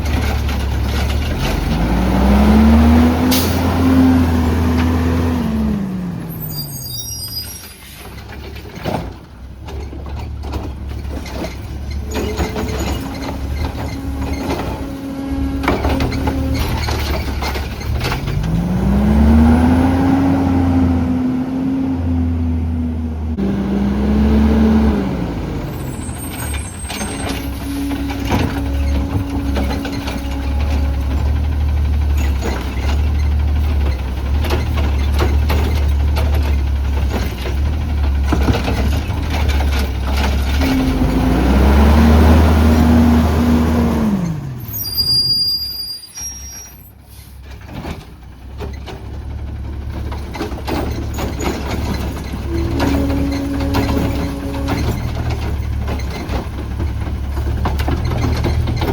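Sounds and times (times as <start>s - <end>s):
garbage truck engine running: 0.0s - 45.3s, 46.2s - 58.9s
hydraulics whining: 0.0s - 58.9s.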